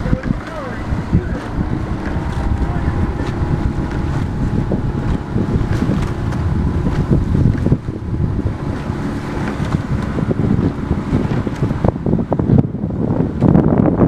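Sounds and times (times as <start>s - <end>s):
wind buffeting microphone: 0.0s - 14.0s
small knocks and splashes: 0.1s - 4.4s.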